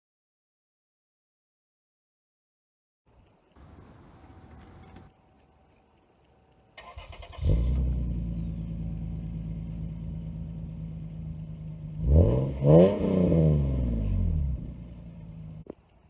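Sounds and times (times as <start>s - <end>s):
car engine starting and idling: 3.6s - 5.1s, 6.8s - 15.7s
engine revving: 3.6s - 5.1s, 6.8s - 15.7s.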